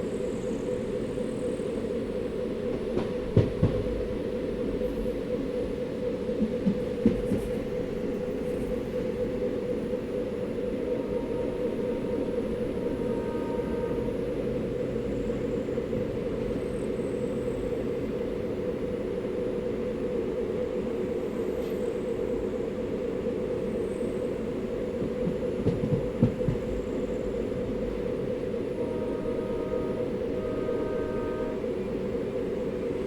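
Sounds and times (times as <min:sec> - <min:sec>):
train rumbling along track: 0:00.0 - 0:33.0
heavy train clatters: 0:00.4 - 0:19.7, 0:23.6 - 0:33.0.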